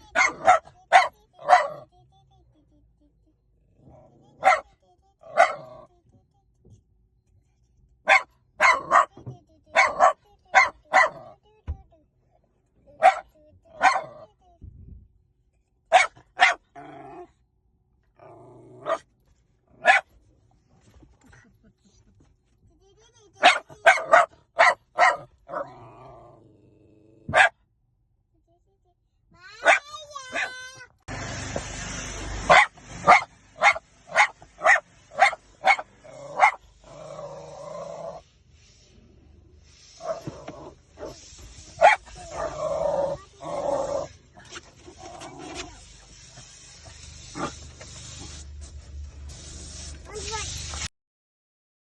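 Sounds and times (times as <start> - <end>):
dog barking: 0.0 - 1.9, 4.4 - 5.9, 8.0 - 11.4, 13.0 - 14.3, 15.9 - 16.8, 18.8 - 19.1, 19.8 - 20.1, 23.4 - 25.7, 27.3 - 27.6, 29.6 - 30.6, 32.5 - 36.7, 40.0 - 40.4, 41.8 - 44.1
dog growling: 16.7 - 17.4, 18.2 - 19.0, 25.5 - 27.3, 36.0 - 38.2, 42.2 - 45.8
rustling noise: 19.1 - 22.8, 38.4 - 50.9.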